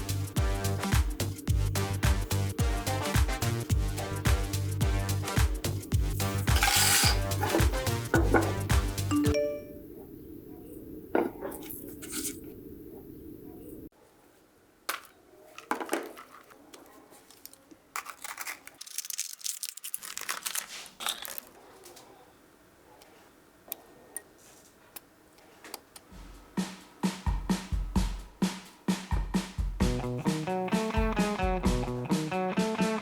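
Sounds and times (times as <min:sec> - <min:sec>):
small parts clicking and scraping: 0:06.5 - 0:07.7, 0:14.9 - 0:21.6.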